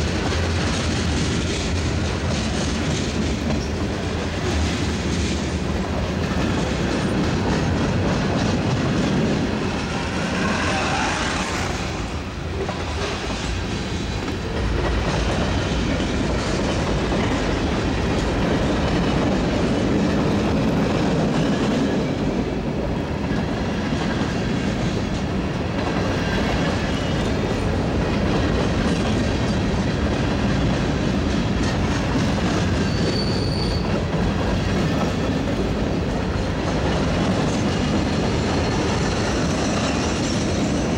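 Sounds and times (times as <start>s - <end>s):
train wheels rumbling on rails: 0.0s - 40.9s
high wheel squeal: 32.7s - 34.1s.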